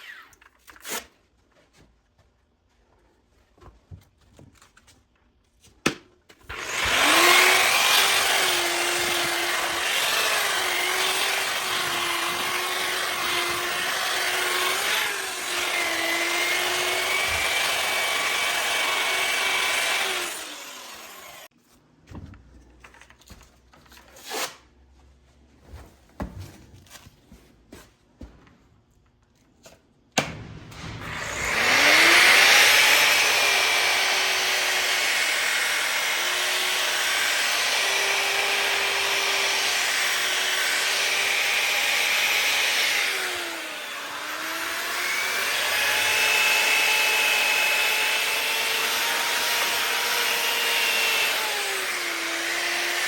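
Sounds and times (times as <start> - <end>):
grinder sanding cast iron: 6.5 - 21.5.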